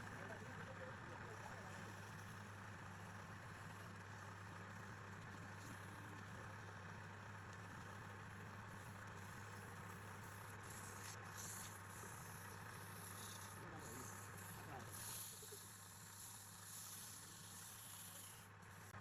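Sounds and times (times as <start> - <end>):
lathe motor running: 8.0 - 19.0.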